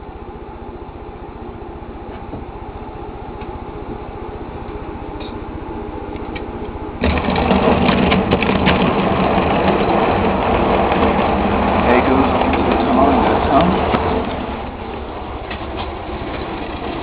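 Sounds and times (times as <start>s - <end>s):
wheels clattering on track: 6.1s - 17.0s.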